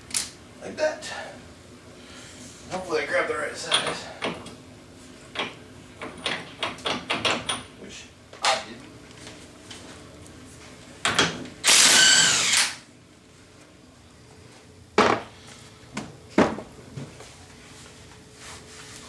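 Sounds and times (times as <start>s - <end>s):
power drill whining: 11.6s - 12.8s.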